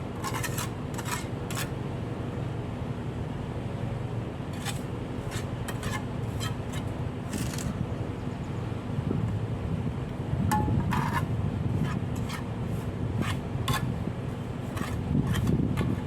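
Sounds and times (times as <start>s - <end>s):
steady low hum: 0.0s - 16.0s
short scraping strokes: 0.2s - 1.7s, 10.9s - 14.0s, 14.6s - 16.0s.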